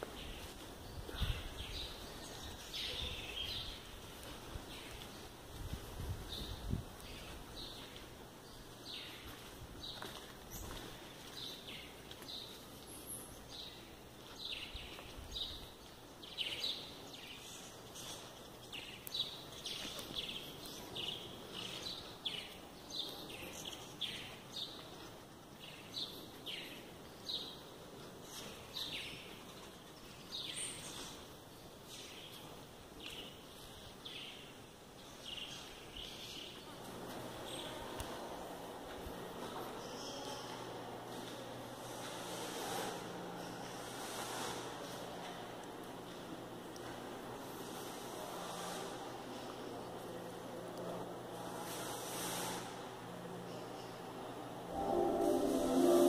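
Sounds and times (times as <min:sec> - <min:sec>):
faint background noise: 0:00.0 - 0:56.0.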